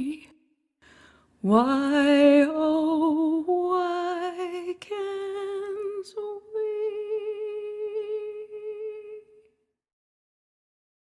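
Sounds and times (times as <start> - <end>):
woman singing with vibrato: 0.0 - 0.4, 1.4 - 9.5.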